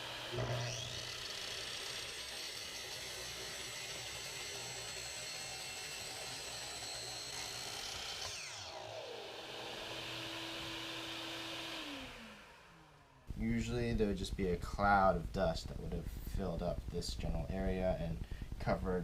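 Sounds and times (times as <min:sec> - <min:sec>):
miter saw motor whine: 0:00.0 - 0:13.3
shop vac hum: 0:00.0 - 0:19.0.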